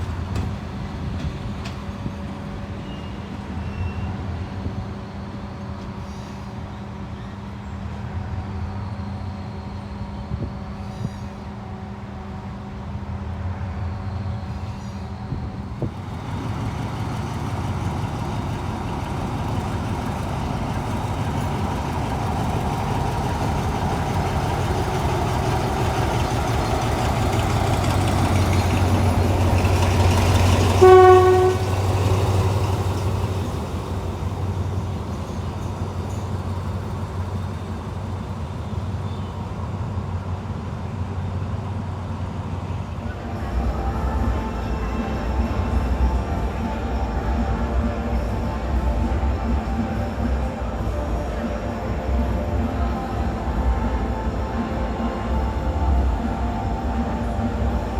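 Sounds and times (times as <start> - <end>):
diesel locomotive engine: 0.0 - 57.9
locomotive horn blast: 15.8 - 34.6, 43.1 - 57.9.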